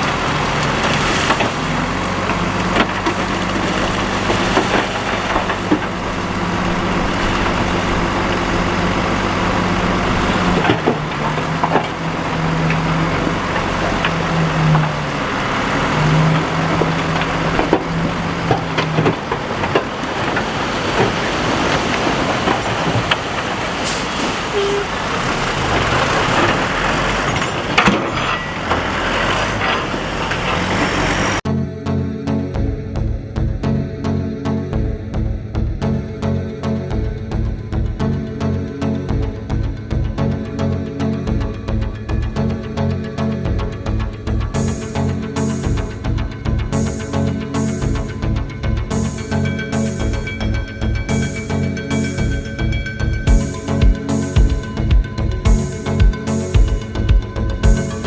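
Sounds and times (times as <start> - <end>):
knocks and clatter: 0.0 - 23.8, 25.4 - 31.0
heavy diesel machinery running: 0.0 - 31.5, 34.9 - 58.0.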